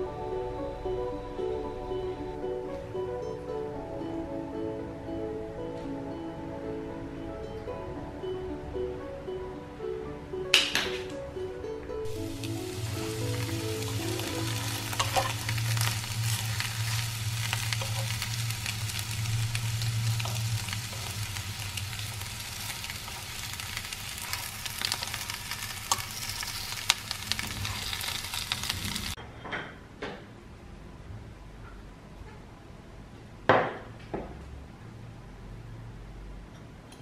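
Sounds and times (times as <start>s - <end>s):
food sizzling in frying pan: 12.1s - 29.2s.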